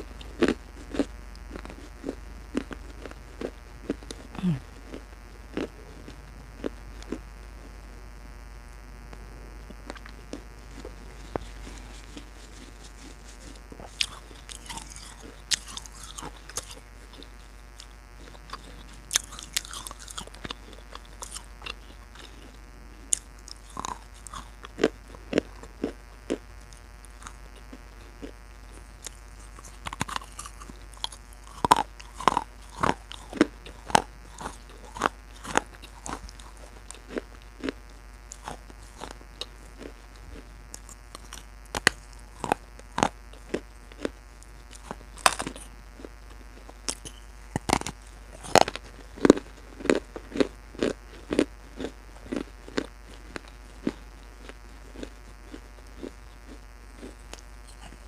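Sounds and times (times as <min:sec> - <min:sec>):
crunching and chewing: 0:00.0 - 0:58.0.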